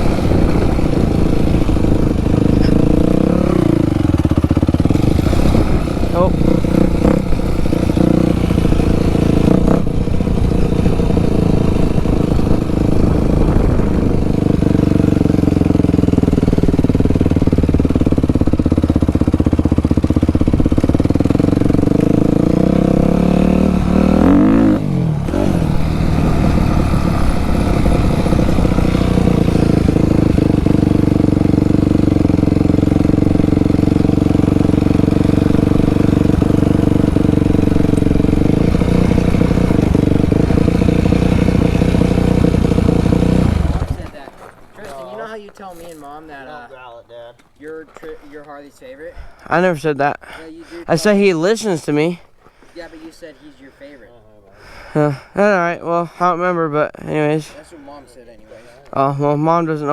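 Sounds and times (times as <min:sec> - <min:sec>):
dirt bike engine revving: 0:00.0 - 0:44.2.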